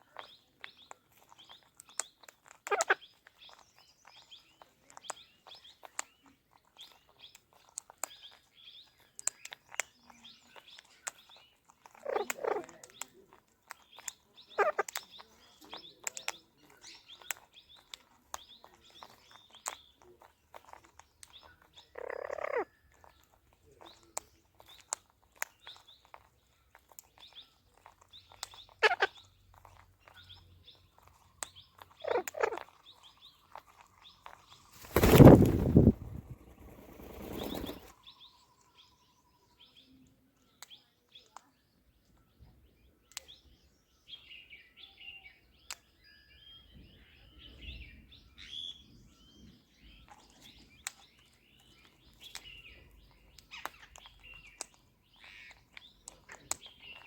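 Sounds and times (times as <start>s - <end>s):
harsh parakeet calls: 2.7s - 3.1s, 12.0s - 12.8s, 14.5s - 15.0s, 21.9s - 22.7s, 28.5s - 29.3s, 31.9s - 33.1s, 34.0s - 37.9s
parakeet chirping: 2.7s - 3.6s, 14.6s - 14.9s, 28.5s - 37.9s.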